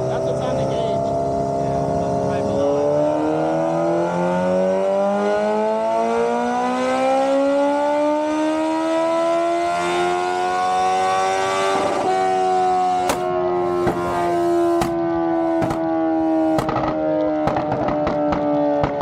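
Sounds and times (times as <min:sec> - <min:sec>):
motorcycle engine revving under load: 0:00.0 - 0:19.0
sharp crack: 0:13.0 - 0:14.0, 0:16.5 - 0:19.0.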